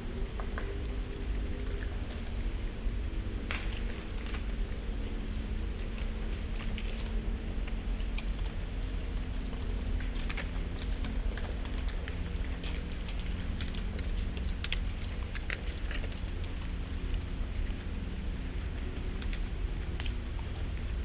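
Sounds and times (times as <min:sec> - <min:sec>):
steady low background hum: 0:00.0 - 0:21.0
leaves landing with light ticks: 0:03.5 - 0:04.6.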